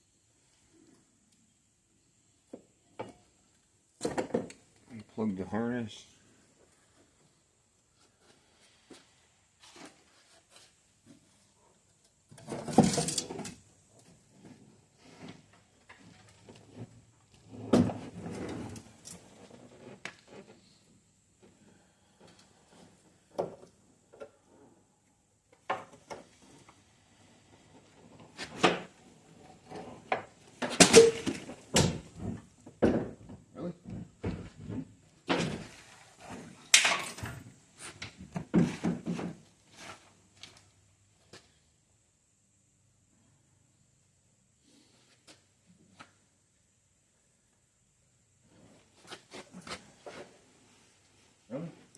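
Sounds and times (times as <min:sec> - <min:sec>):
clunks and knocks of parts: 0:04.0 - 0:04.6, 0:12.2 - 0:13.6, 0:28.1 - 0:35.8, 0:36.7 - 0:39.4.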